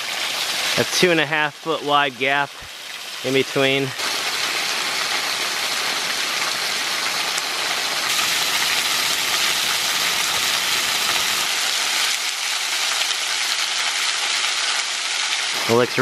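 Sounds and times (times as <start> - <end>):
waterfall splashing onto rock: 7.3 - 15.8.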